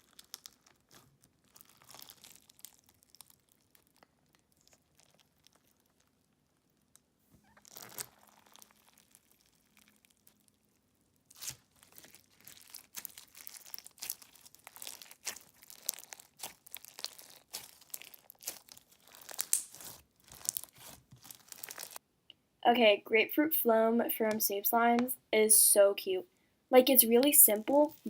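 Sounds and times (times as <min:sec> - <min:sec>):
crunchy slime crackling: 0:00.0 - 0:22.0.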